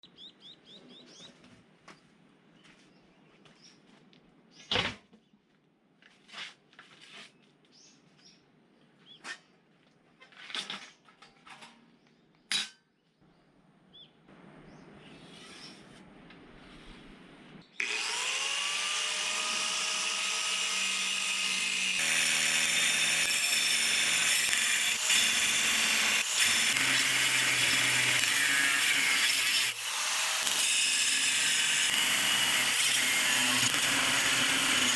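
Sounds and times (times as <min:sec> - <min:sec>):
power tool cutting steel: 0:17.8 - 0:34.9.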